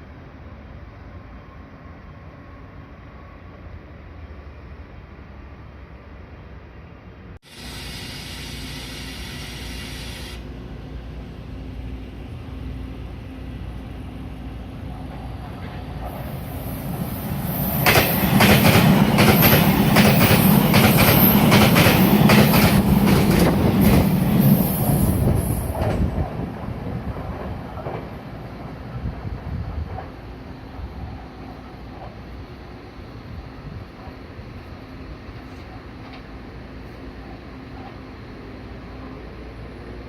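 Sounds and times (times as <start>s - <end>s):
train passing at speed: 0.0s - 40.0s
wheels clacking over rail joints: 17.8s - 24.6s.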